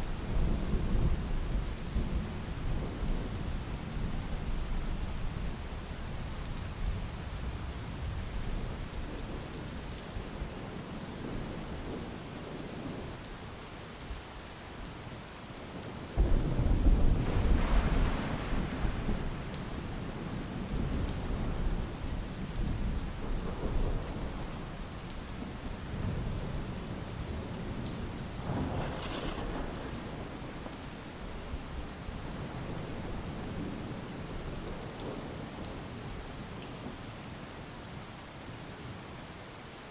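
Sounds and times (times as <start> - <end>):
steady rain falling: 0.0 - 39.9
rolling thunder: 16.2 - 24.8, 25.4 - 34.0.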